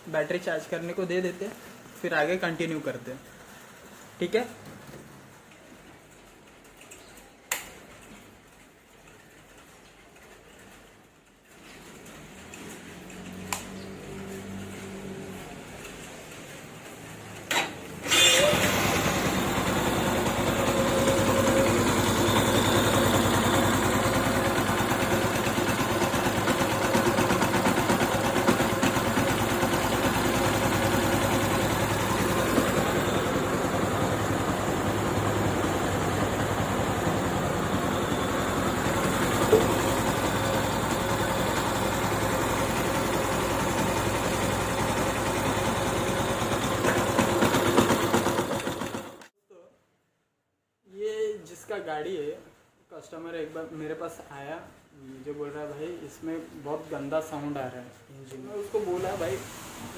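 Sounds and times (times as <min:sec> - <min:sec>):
engine knocking noise: 0:18.1 - 0:49.3
motorcycle engine idling: 0:18.5 - 0:49.2.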